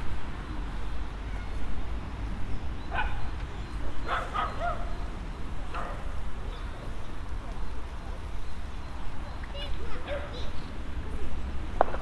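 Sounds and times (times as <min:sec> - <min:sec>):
dog yipping: 0:04.1 - 0:04.9.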